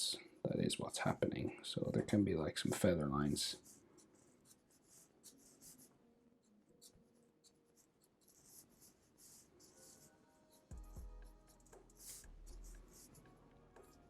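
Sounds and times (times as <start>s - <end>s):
pencil scratching on paper: 3.4s - 6.0s, 6.8s - 14.0s.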